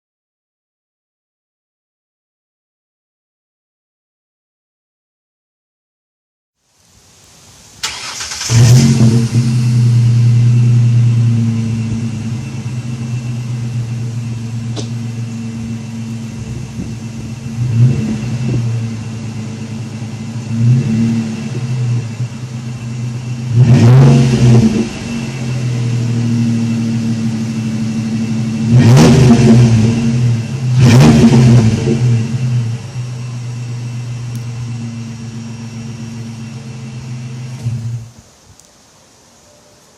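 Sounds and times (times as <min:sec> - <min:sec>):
engine starting: 0:07.8 - 0:09.7
engine idling: 0:07.8 - 0:38.1
engine revving: 0:07.8 - 0:38.1.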